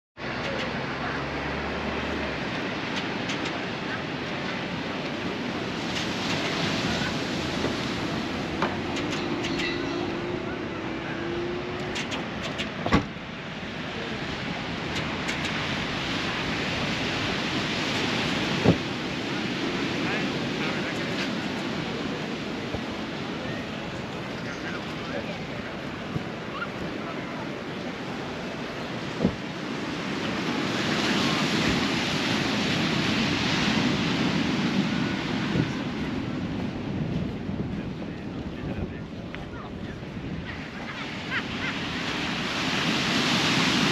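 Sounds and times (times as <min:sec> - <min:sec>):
sea surf: 0:00.2 - 0:43.9
wind noise: 0:02.2 - 0:43.9
short thump: 0:12.8 - 0:13.1.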